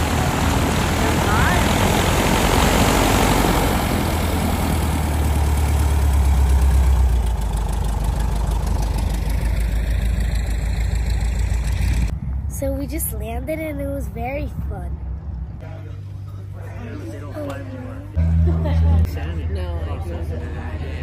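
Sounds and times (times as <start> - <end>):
light airplane engine drone: 0.0 - 14.2.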